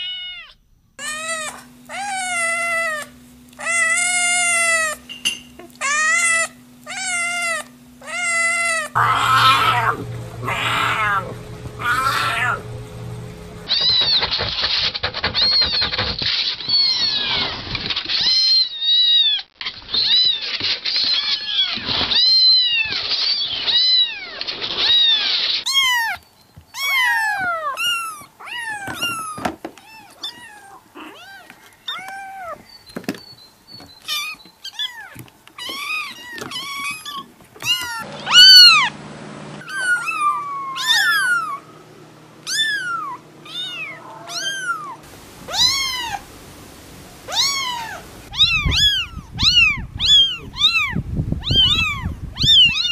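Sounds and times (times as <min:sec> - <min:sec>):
kittens mewing: 0:00.0 - 0:05.0, 0:05.6 - 0:14.4, 0:26.8 - 0:32.6, 0:34.1 - 0:38.9, 0:39.6 - 0:41.8, 0:42.4 - 0:46.3, 0:47.2 - 0:52.9.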